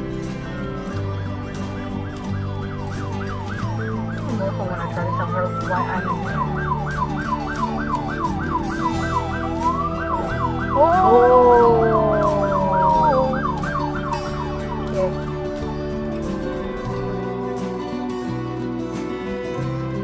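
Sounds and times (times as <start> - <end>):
siren yelping: 2.0 - 16.2
tone sliding down in pitch: 10.7 - 13.6
low drone: 10.7 - 15.7.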